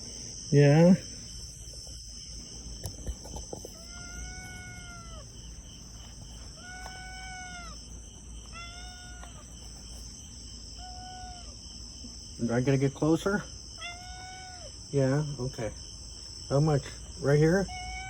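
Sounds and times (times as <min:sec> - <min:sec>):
crickets chirping: 0:00.0 - 0:18.0
cat meowing: 0:03.8 - 0:05.3, 0:06.5 - 0:09.6, 0:10.8 - 0:11.6, 0:13.8 - 0:14.7, 0:17.6 - 0:18.0.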